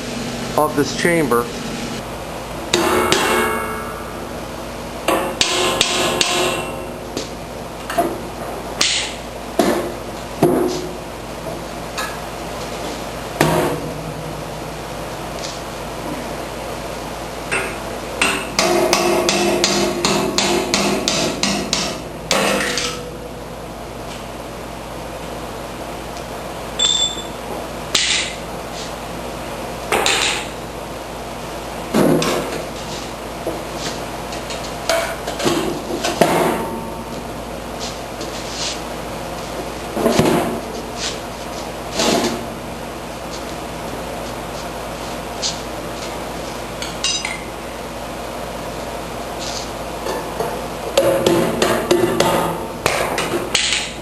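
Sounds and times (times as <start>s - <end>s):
hammer striking metal: 2.7s - 4.1s, 5.1s - 6.9s, 17.5s - 23.0s, 47.0s - 47.4s
high ringing ping: 26.8s - 27.4s.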